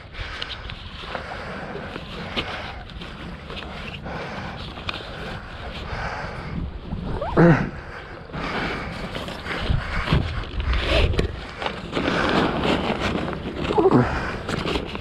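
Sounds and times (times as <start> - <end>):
wind: 0.0 - 15.0
water noise: 6.9 - 8.0
short rising pitched sound: 7.1 - 7.6.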